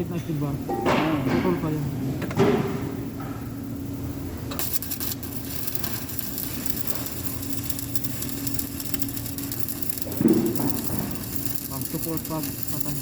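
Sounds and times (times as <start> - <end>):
low steady hum: 0.0 - 13.0
arc welding crackling: 2.6 - 13.0.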